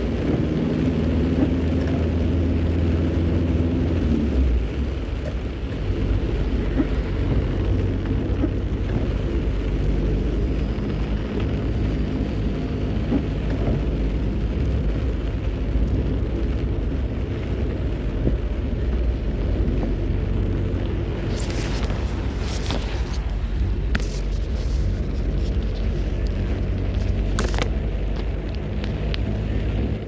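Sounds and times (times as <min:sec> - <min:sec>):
vehicle driving on wet road: 0:00.0 - 0:30.0.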